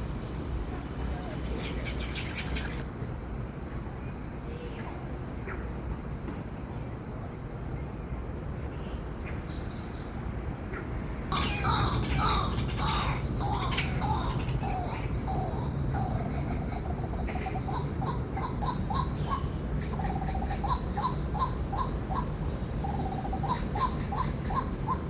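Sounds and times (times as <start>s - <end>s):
bird calling: 1.1s - 2.8s, 11.3s - 25.0s.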